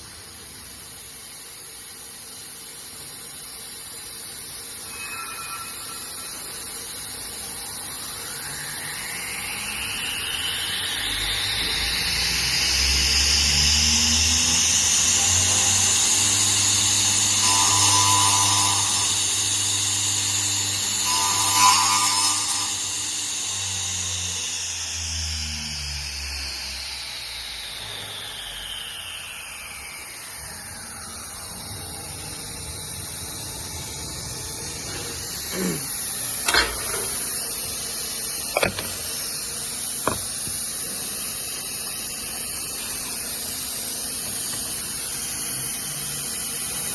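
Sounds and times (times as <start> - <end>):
spindle motor whining: 4.8 - 41.1.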